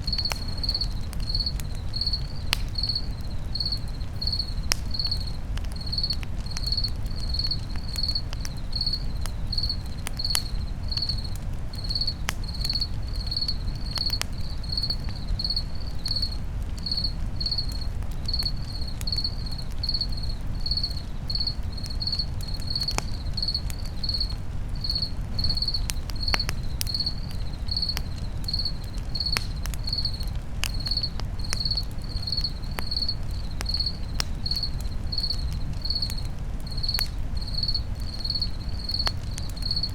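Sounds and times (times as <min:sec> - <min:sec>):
campfire crackling and popping: 0:00.0 - 0:39.9
crickets chirping: 0:00.0 - 0:39.9.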